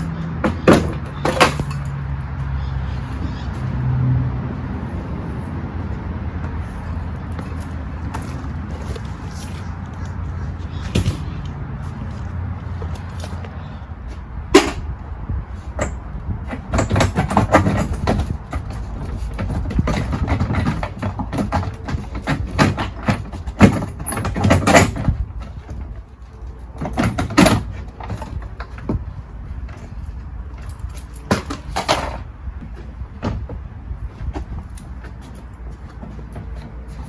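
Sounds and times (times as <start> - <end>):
metal tools clanking: 0.4 - 2.1, 14.5 - 15.0.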